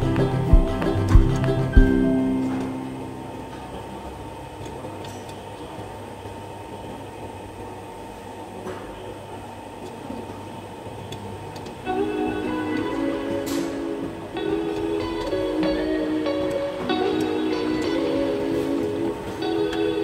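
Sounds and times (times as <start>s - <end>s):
music: 0.0s - 3.3s, 11.9s - 20.0s
low mechanical hum: 0.0s - 20.0s.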